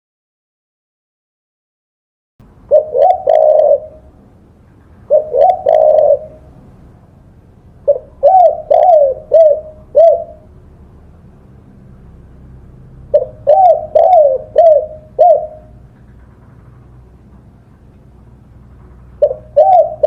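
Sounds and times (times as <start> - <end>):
dove cooing: 2.7 - 4.2, 5.0 - 6.7, 7.8 - 10.5, 13.1 - 16.2, 19.1 - 20.0.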